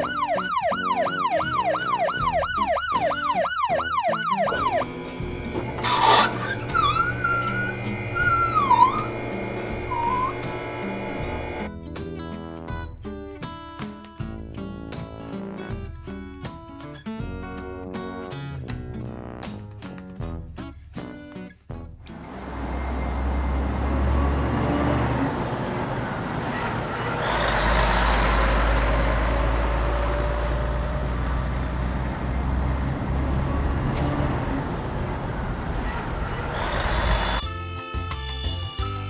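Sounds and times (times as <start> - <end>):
truck engine running: 4.4 - 11.7, 22.1 - 37.4.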